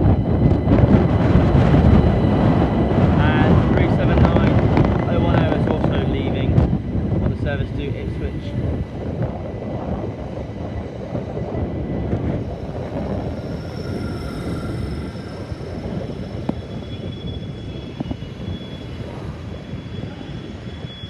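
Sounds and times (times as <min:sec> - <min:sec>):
electric train high whine: 0:00.0 - 0:21.0
wind buffeting microphone: 0:00.0 - 0:21.0.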